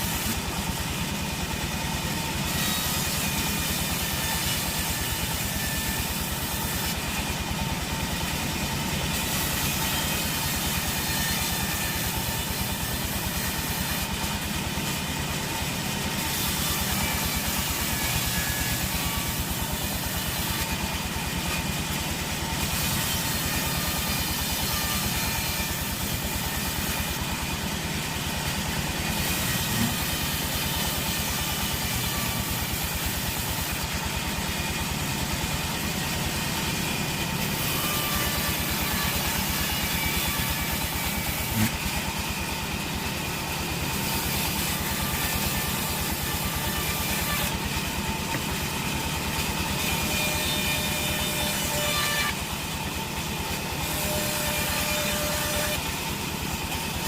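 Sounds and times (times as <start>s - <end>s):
sawmill machinery drone: 0.0s - 57.0s.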